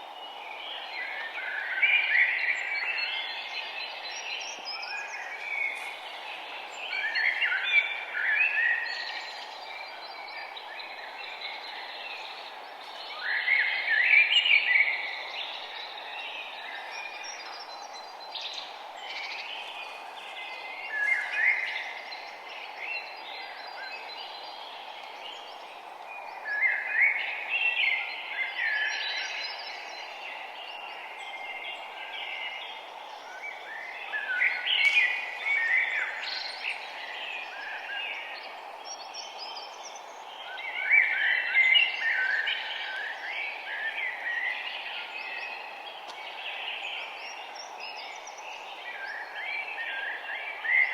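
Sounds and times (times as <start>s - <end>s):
songbirds singing: 0.0s - 50.9s.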